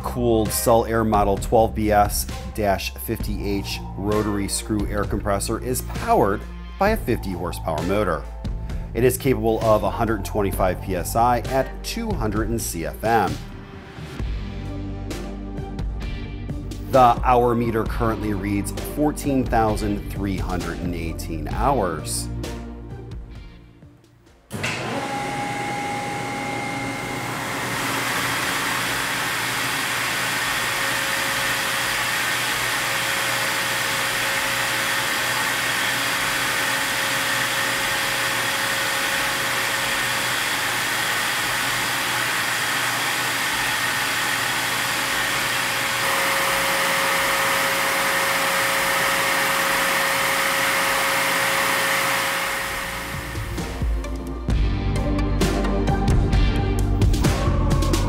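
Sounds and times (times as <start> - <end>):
air compressor running: 24.5 - 54.3.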